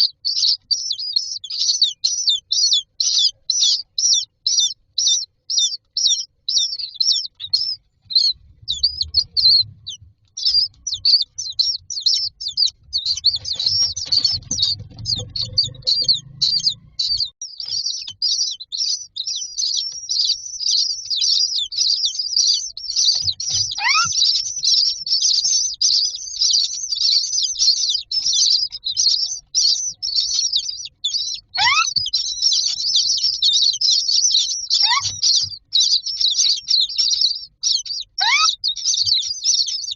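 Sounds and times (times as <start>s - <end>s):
chicks begging chirps: 0.0s - 39.9s
low bumping: 7.9s - 17.3s
calls falling in pitch: 23.6s - 25.7s, 31.2s - 35.6s, 36.9s - 39.2s.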